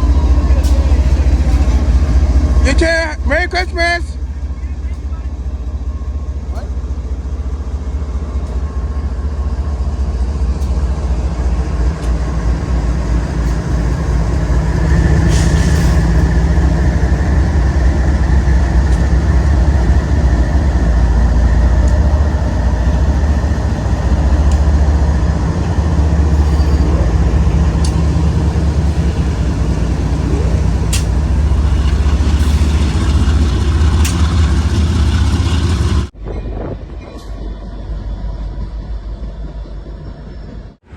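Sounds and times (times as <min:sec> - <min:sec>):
train rumbling past: 0:00.0 - 0:40.9
clicks of train: 0:09.9 - 0:37.6.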